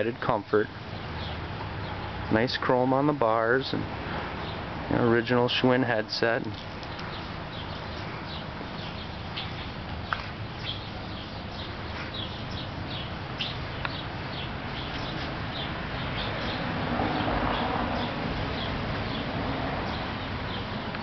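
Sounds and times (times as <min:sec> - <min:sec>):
outdoor background noise: 0:00.0 - 0:21.0
small birds chirping: 0:00.6 - 0:02.4, 0:04.2 - 0:04.8, 0:06.2 - 0:21.0
small clicks: 0:06.4 - 0:07.1.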